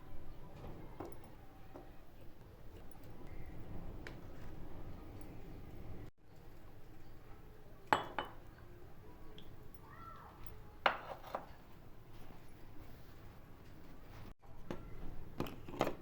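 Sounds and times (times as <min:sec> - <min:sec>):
metal utensils clinking on cookware: 0:10.4 - 0:11.6.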